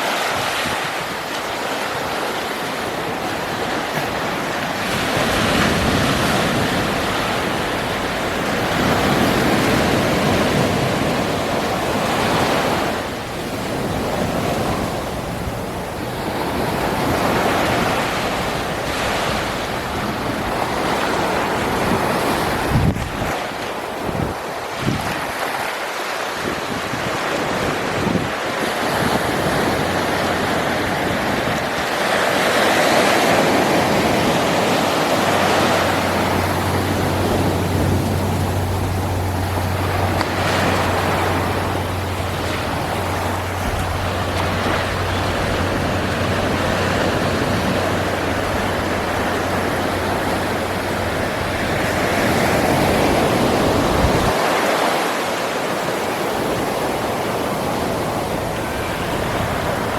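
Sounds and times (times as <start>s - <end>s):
ocean surf breaking on beach: 0.0s - 59.9s
low steady rumble: 2.7s - 23.0s, 35.3s - 54.3s.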